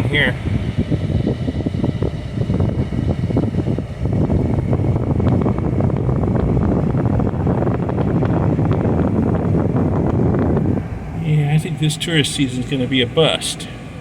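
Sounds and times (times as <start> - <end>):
road rumble: 0.0 - 14.0
wind buffeting microphone: 0.0 - 14.0.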